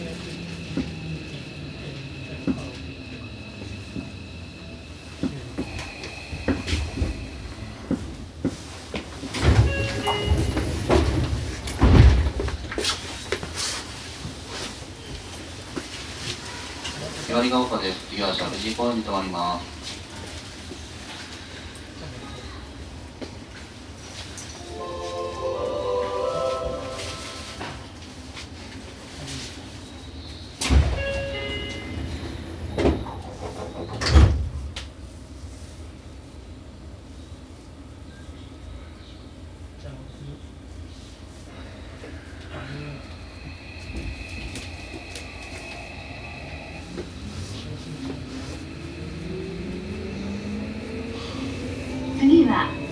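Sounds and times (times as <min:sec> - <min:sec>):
knocks and thumps in train car: 0:05.2 - 0:13.6.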